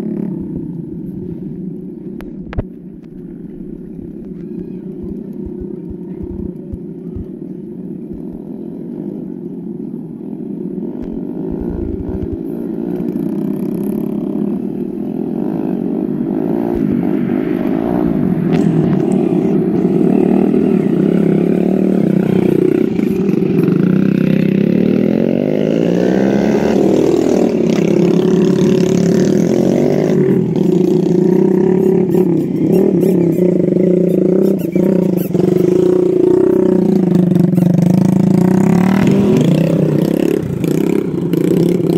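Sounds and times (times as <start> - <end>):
motorbike engine revving: 10.7 - 41.9.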